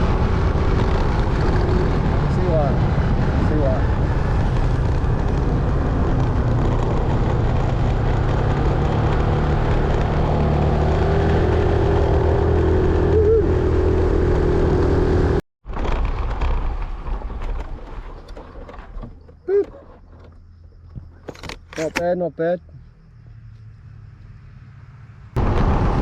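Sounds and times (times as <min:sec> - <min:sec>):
road and wind noise: 0:00.0 - 0:26.0.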